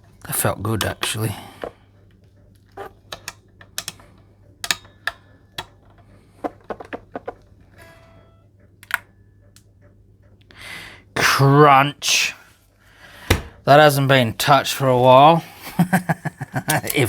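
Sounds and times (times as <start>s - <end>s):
tools clicking and tapping: 0.1s - 9.7s
guitar string ringing: 0.3s - 1.7s, 2.8s - 9.6s.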